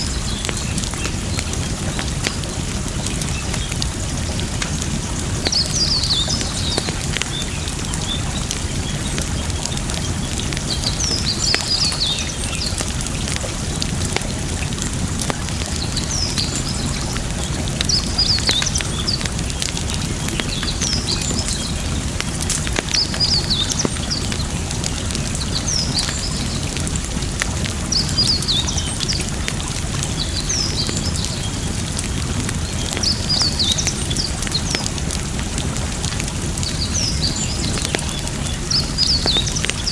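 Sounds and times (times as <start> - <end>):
campfire crackling and popping: 0.0 - 39.9
running water: 0.0 - 39.9
bird chirping: 5.3 - 12.9.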